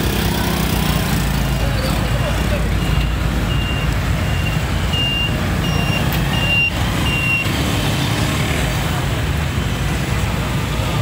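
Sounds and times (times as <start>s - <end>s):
high electronic beep: 2.8s - 7.5s.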